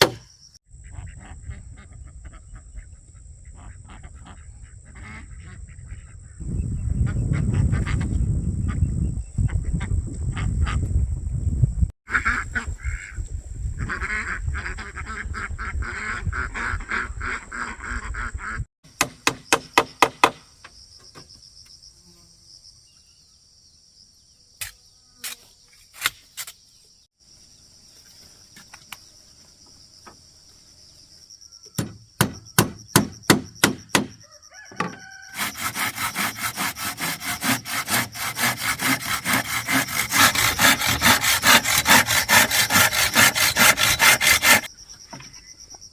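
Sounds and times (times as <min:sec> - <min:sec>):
farm fowl calling: 0:12.1 - 0:13.2, 0:34.2 - 0:36.2
hand-sawing wood: 0:35.3 - 0:44.7
sharp strokes on wood: 0:35.3 - 0:44.7.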